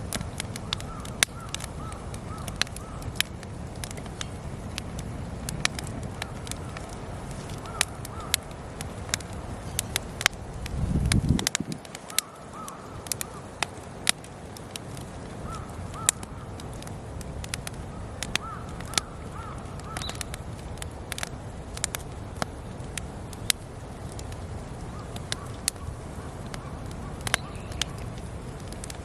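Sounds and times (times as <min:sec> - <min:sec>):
campfire wood crackling: 0:00.0 - 0:29.0
bird calling: 0:00.5 - 0:03.2, 0:06.1 - 0:08.7, 0:12.0 - 0:13.6, 0:15.4 - 0:16.6, 0:17.9 - 0:20.4, 0:24.9 - 0:28.2.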